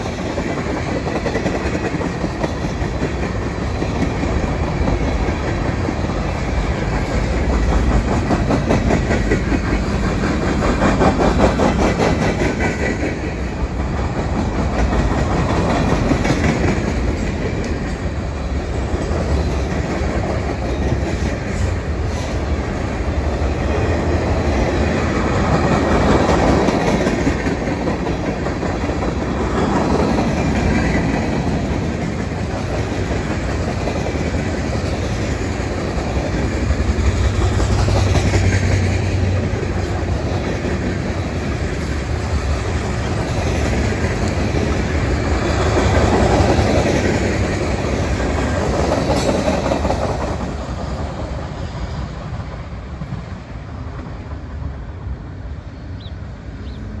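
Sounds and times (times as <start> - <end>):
freight cars rolling on rails: 0.0 - 57.0.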